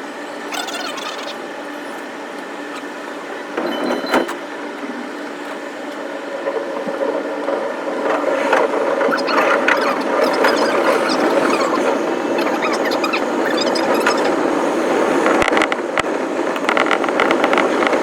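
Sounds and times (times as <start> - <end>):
train motor hum: 0.0 - 18.0.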